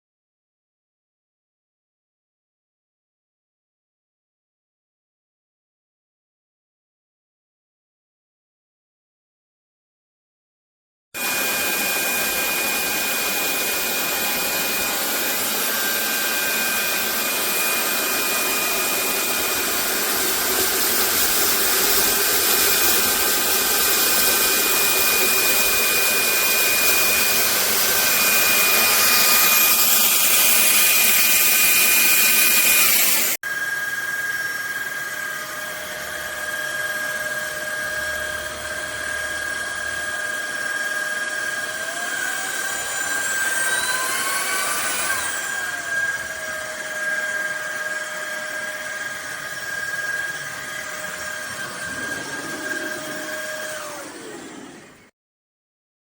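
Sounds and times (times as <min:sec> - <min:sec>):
stick vacuum cleaner running: 0:11.2 - 0:55.1.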